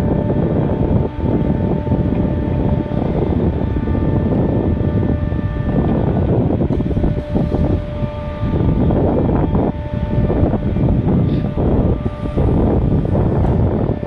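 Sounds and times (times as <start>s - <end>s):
faint steady tones: 0.0s - 14.0s
vehicle rumble: 0.0s - 14.0s
wind buffeting microphone: 0.0s - 14.0s.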